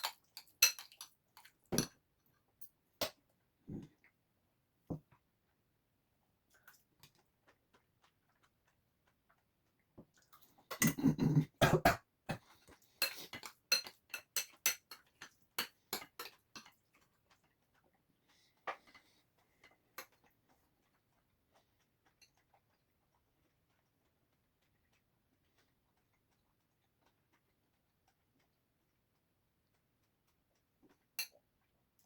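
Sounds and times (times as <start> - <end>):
spoon clicking against a dish: 0.0 - 1.9, 13.0 - 16.7.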